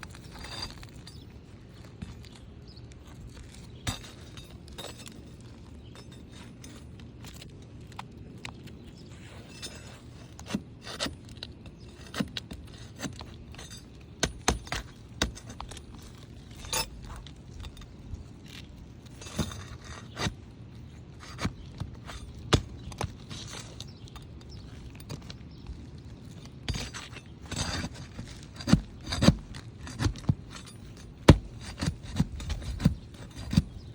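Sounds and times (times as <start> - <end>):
hand tools scraping roof shingles: 8.9 - 33.9.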